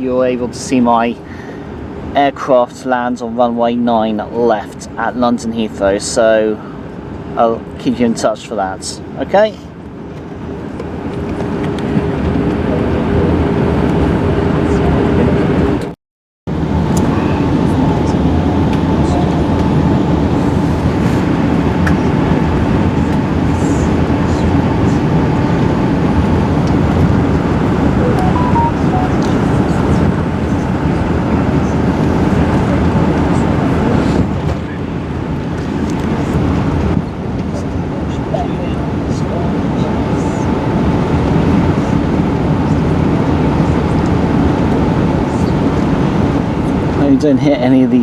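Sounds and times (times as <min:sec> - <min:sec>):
airliner engines rumbling in cabin: 0:00.0 - 0:03.3, 0:04.0 - 0:15.9, 0:16.5 - 0:47.3
faint steady tone: 0:28.0 - 0:29.8.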